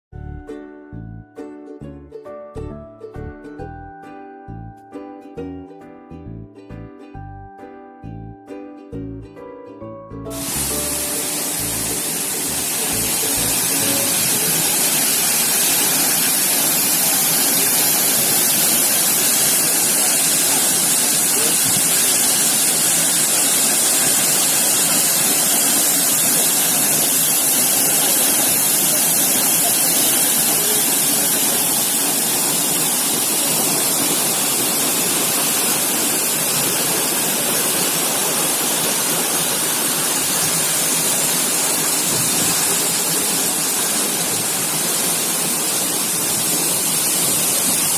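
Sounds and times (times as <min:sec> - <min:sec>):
waterfall rushing: 0:10.3 - 0:47.9.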